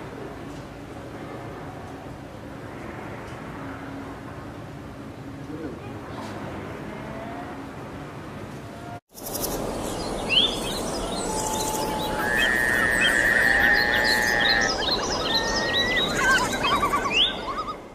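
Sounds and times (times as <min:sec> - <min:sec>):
bird trill: 0:09.1 - 0:17.9
birds chirping: 0:09.1 - 0:17.9.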